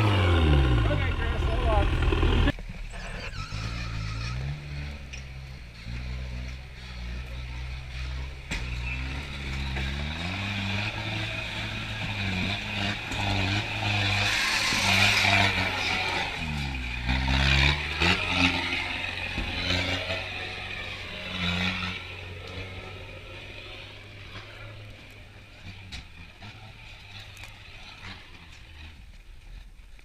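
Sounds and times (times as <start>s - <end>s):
diesel engine revving: 0.0s - 2.5s, 8.9s - 25.4s.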